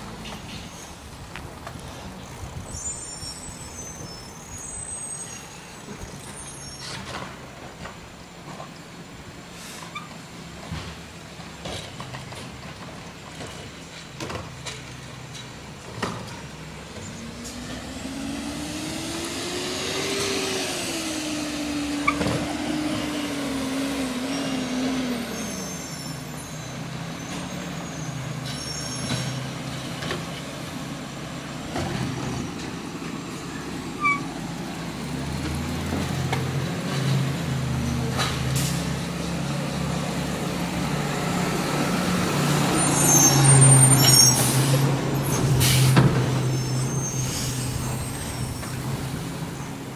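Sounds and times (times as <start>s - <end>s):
garbage truck engine and hydraulics: 0.0s - 49.9s
short high squeaks: 2.7s - 7.2s, 25.3s - 29.4s, 34.0s - 34.3s, 42.7s - 45.9s, 46.5s - 48.8s.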